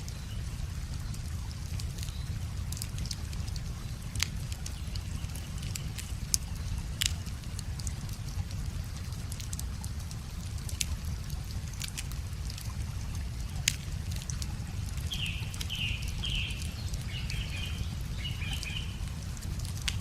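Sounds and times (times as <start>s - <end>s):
running water: 0.0s - 20.0s
wood fire crackling: 0.0s - 20.0s
bird singing: 15.1s - 19.2s.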